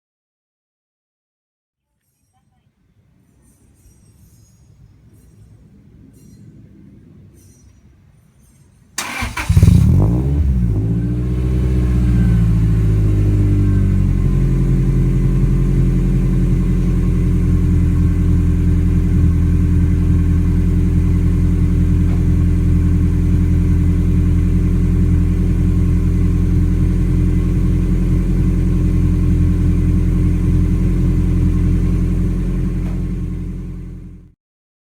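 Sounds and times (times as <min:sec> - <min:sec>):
car engine starting and idling: 0:09.0 - 0:34.3.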